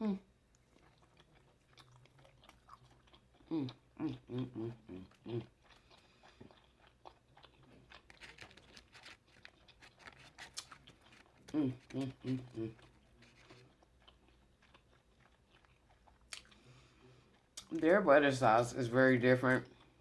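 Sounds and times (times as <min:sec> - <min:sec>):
chewing and mouth smacking: 0:00.5 - 0:17.9
person humming mmm: 0:03.5 - 0:05.5, 0:11.5 - 0:12.8.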